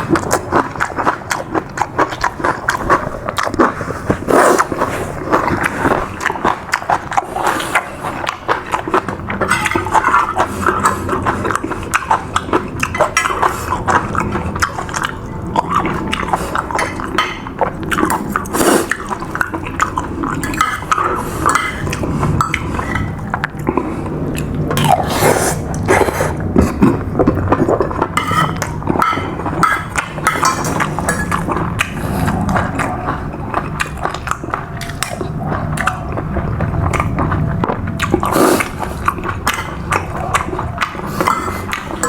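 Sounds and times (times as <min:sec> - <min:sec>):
person chewing food: 0:00.0 - 0:42.0
spoon clinking against a plate: 0:09.4 - 0:09.9, 0:20.4 - 0:23.3, 0:28.2 - 0:31.6, 0:41.2 - 0:42.0.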